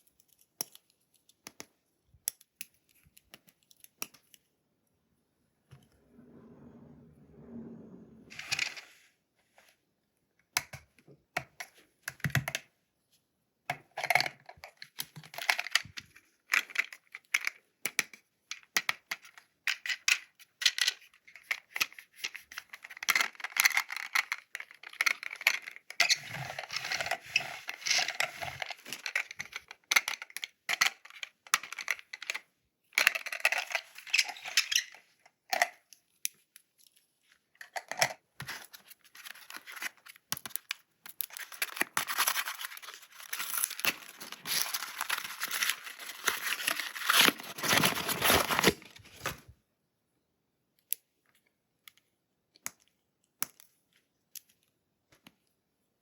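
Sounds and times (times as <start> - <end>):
small clicks and taps: 0.0 - 4.5
packaging rustling and tearing: 38.5 - 49.5.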